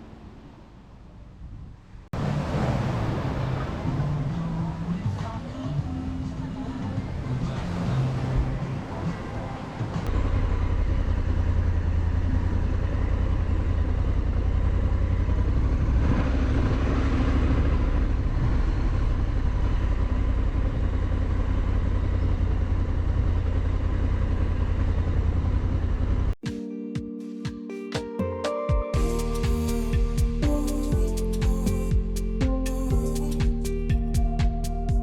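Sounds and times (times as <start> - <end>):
motorcycle engine rumble: 1.1 - 26.4.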